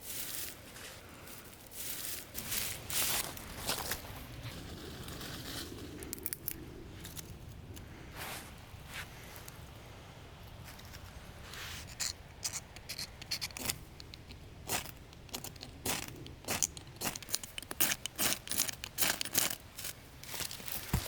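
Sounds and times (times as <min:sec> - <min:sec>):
campfire crackling: 0:00.0 - 0:21.0.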